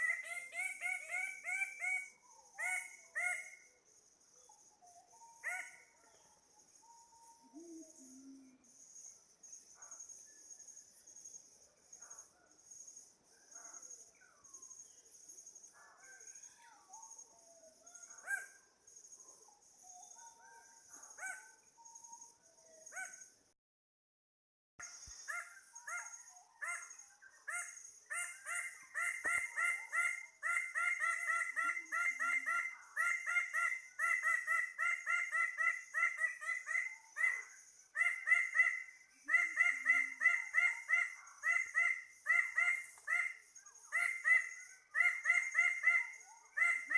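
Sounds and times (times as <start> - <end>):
forest birds calling: 0.0 - 10.2, 24.8 - 46.9.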